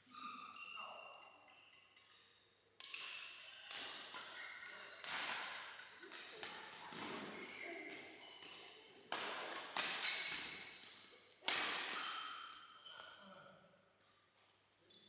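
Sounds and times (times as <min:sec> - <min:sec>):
rackets hitting shuttlecock: 0:11.4 - 0:12.1.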